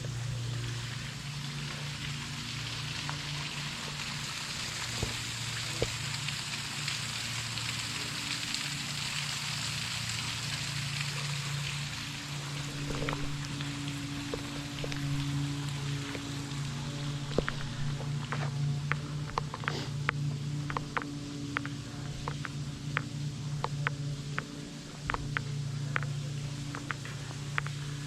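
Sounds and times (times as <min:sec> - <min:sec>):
low steady hum: 0:00.0 - 0:28.0
running water hissing: 0:00.0 - 0:28.0
faint clicks: 0:12.6 - 0:28.0.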